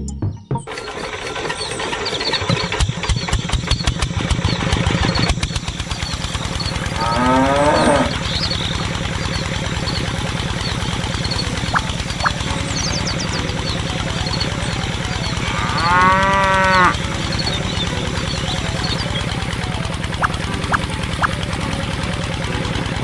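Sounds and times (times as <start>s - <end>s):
small diesel engine chugging: 0.7s - 23.0s
cow mooing: 6.8s - 8.3s, 15.4s - 17.0s.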